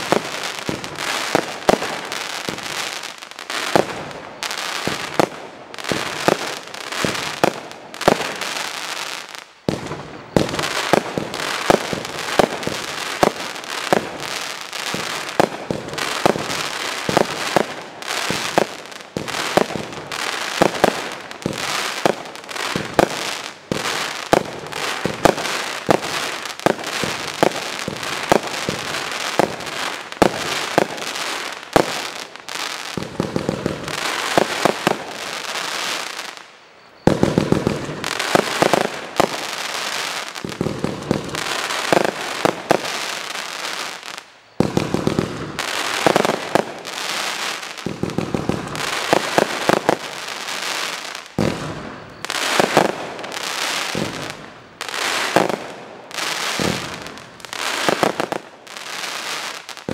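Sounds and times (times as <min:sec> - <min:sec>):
crackling firework stars: 0:00.0 - 0:59.9
fireworks launch thumps and bursts: 0:04.8 - 0:08.4, 0:14.8 - 0:31.1, 0:51.4 - 0:53.2, 0:53.9 - 0:54.5, 0:56.6 - 0:57.2.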